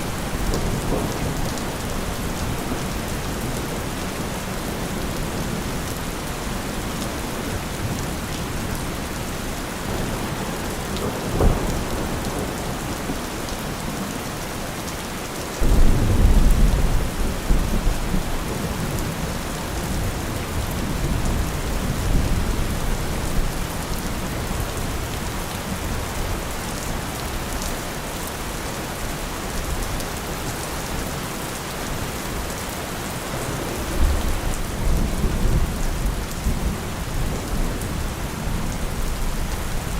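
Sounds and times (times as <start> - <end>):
thunder rumbling: 0.0 - 14.9, 15.6 - 26.0, 31.8 - 39.9
steady rain falling: 0.0 - 39.9.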